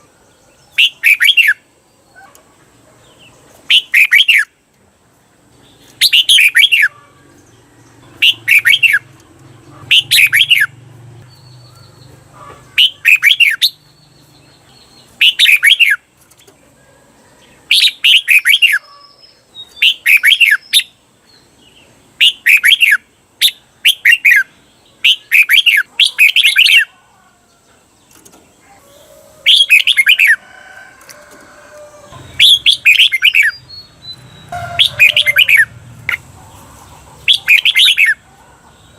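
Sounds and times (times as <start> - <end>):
bulbul singing: 0.0 - 2.2, 5.6 - 16.1, 17.7 - 26.9, 31.9 - 38.9.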